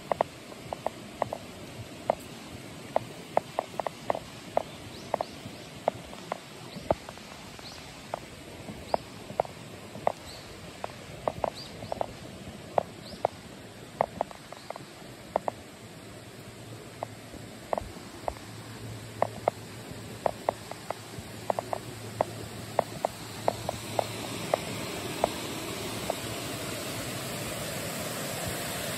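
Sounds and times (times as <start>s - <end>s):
mountain stream rushing: 0.0s - 28.9s
water plinks and gurgles: 0.0s - 28.9s.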